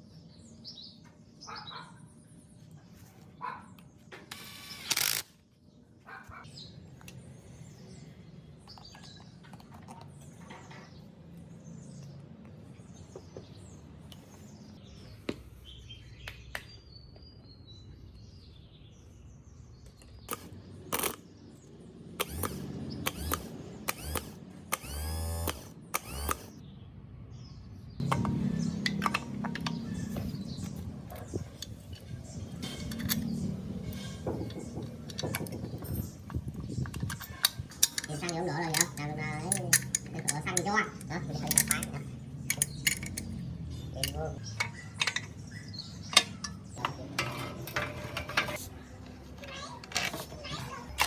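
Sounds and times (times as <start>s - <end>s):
metal tools clinking: 28.0s - 34.2s, 35.1s - 48.7s.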